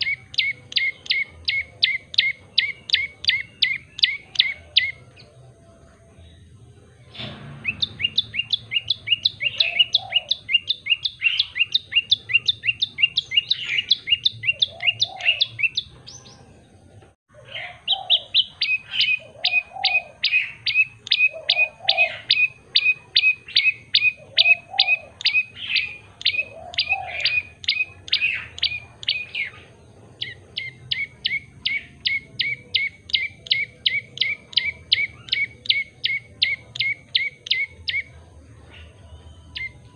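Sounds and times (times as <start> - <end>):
bird chirping rapidly: 0.0 - 5.3, 7.2 - 16.5, 17.5 - 38.1
soft low bird call: 7.0 - 16.4.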